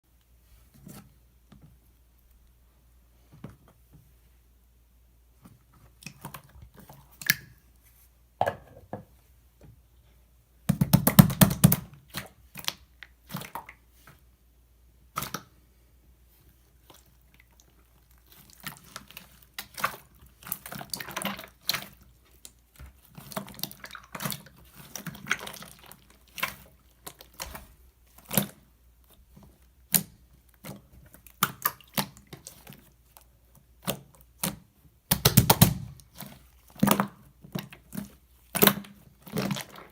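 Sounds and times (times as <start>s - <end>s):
slime squished by hand: 16.8s - 39.9s.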